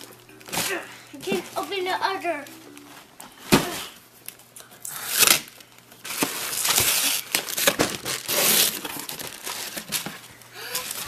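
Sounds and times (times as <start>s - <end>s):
paper packaging tearing: 4.9s - 10.1s.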